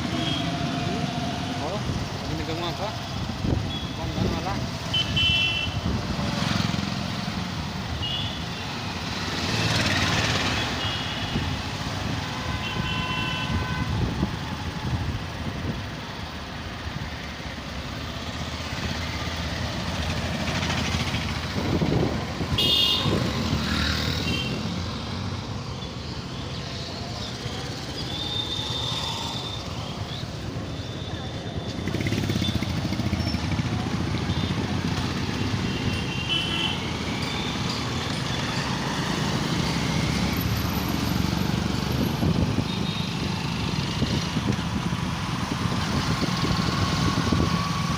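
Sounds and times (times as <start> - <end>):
road traffic rumble: 0.0 - 47.9
car horns honking: 22.5 - 23.2.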